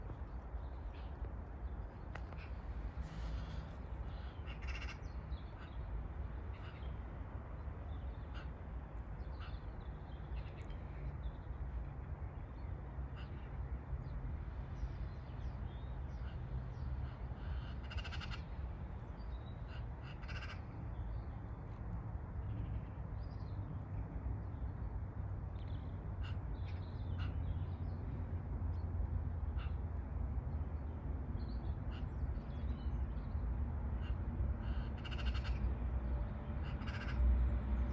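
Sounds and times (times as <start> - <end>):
crows cawing: 4.2 - 5.1, 17.4 - 18.5, 19.7 - 20.7, 34.0 - 35.7, 36.6 - 37.2.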